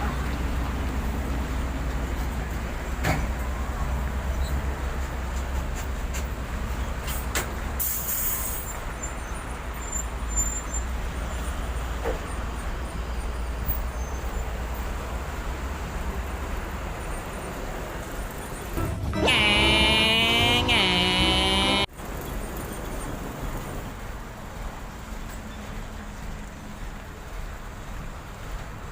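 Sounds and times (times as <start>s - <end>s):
air-brake hiss: 7.8s - 8.8s
heavy vehicle engine rumbling: 17.8s - 21.9s
wavering multi-tone sound: 18.8s - 21.9s.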